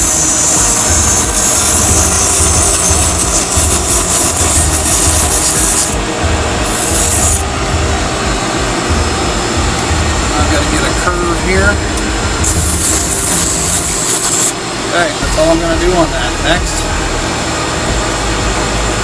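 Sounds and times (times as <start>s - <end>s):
sandpaper hissing on spinning wood: 0.0s - 6.0s, 6.6s - 7.4s, 12.4s - 16.8s
lathe running rumble: 0.0s - 19.0s.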